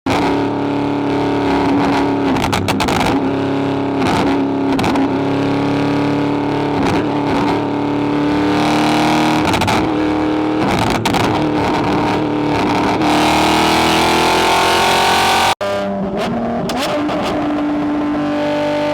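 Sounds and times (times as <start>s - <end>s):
car engine and exhaust running: 0.1s - 18.9s.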